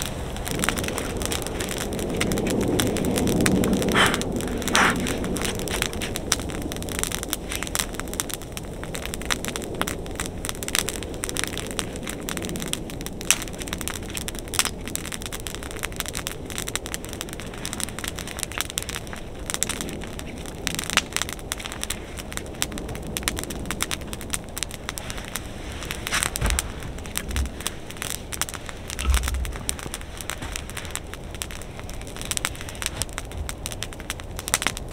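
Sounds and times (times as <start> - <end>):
wood fire crackling: 0.0 - 34.9
dull low thumps: 26.2 - 27.7, 28.9 - 31.2.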